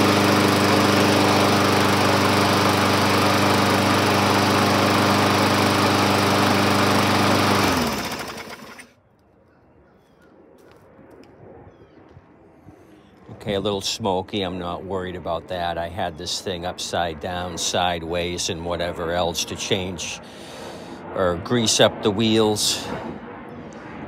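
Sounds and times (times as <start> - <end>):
lawn mower engine running: 0.0 - 8.9.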